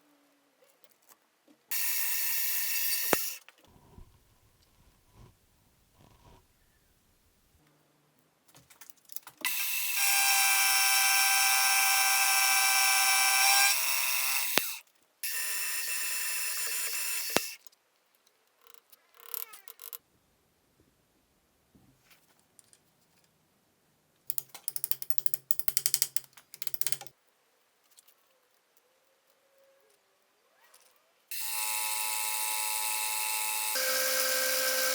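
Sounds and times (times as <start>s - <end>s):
workshop tool motor whining: 9.5s - 17.6s, 31.3s - 34.9s.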